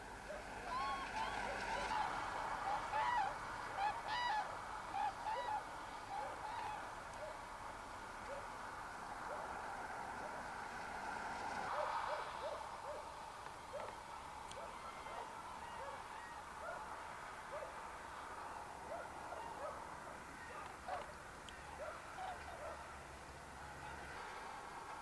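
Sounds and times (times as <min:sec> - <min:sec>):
cranes trumpeting calls: 0:00.7 - 0:06.9.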